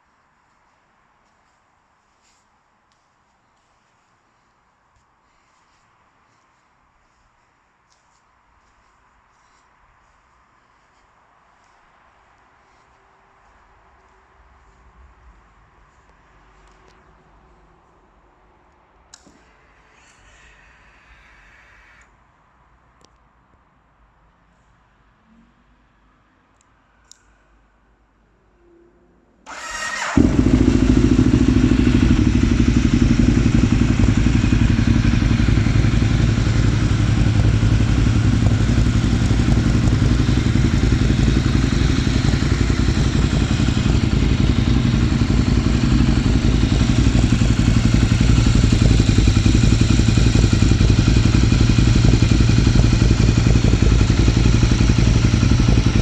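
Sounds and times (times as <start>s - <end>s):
motorcycle engine idling: 29.5s - 56.0s.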